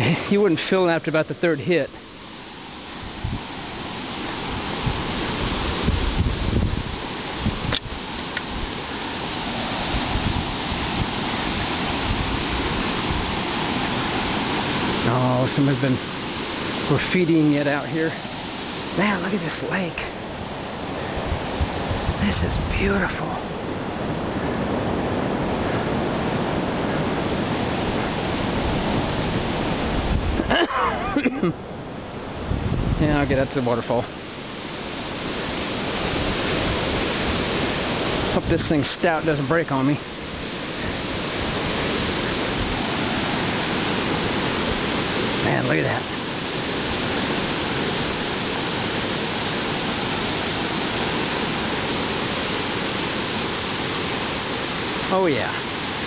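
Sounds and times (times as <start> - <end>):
water pouring over spillway: 2.3 - 20.0, 34.4 - 56.0.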